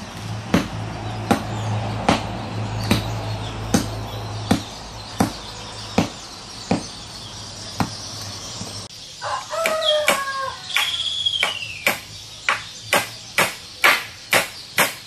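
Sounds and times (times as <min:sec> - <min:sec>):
hand tool striking wood: 0:00.5 - 0:03.1, 0:03.7 - 0:05.4, 0:06.0 - 0:06.9, 0:09.6 - 0:15.0
rooster crowing: 0:09.2 - 0:11.0.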